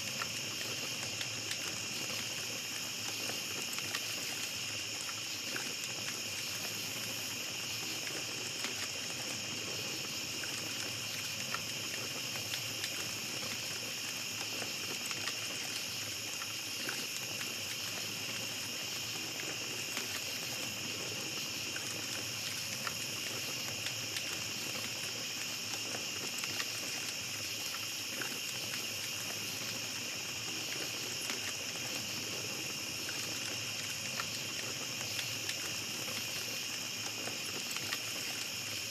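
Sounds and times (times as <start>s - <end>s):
campfire crackling and popping: 0.0s - 38.9s
night insects droning: 0.0s - 38.9s.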